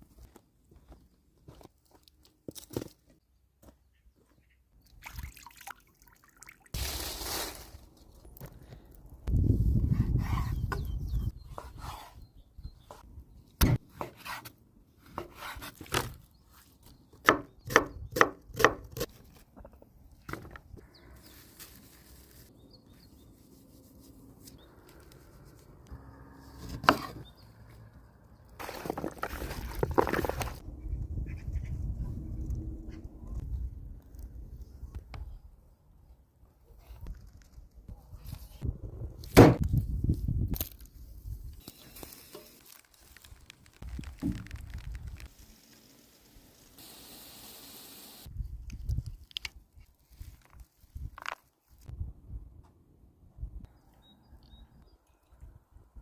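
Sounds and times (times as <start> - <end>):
hissing rush of liquid: 45.3 - 48.3.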